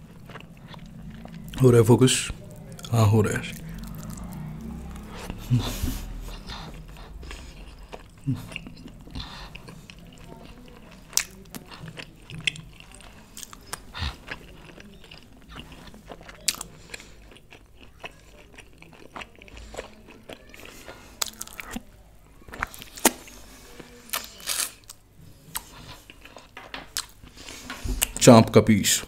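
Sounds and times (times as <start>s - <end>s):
wet chewing mouth clicks: 0.0s - 21.8s.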